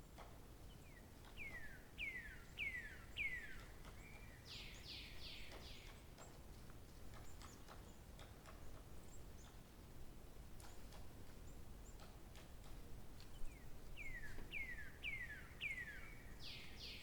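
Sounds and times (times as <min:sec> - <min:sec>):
songbird singing: 0:00.7 - 0:06.1, 0:13.2 - 0:17.0.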